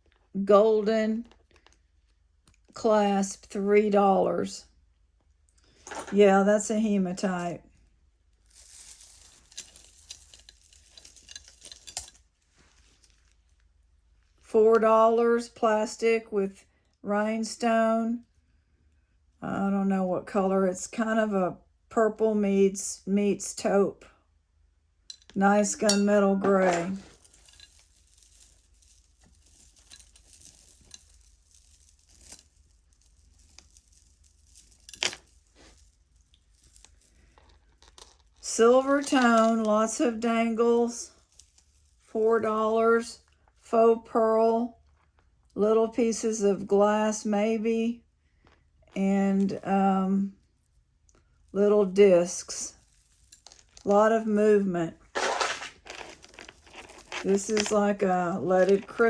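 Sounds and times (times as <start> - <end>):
jewelry beads clinking: 5.8 - 14.5, 25.1 - 43.7, 49.1 - 59.0
plastic bag rustling: 55.0 - 59.0.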